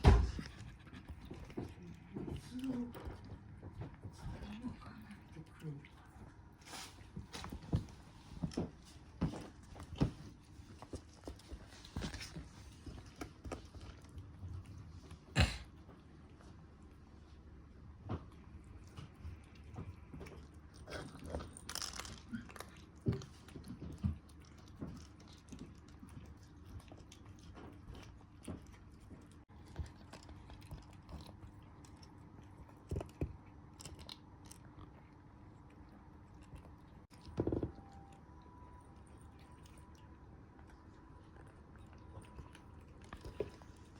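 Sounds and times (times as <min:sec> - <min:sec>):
cat chewing and crunching: 0:00.0 - 0:43.9.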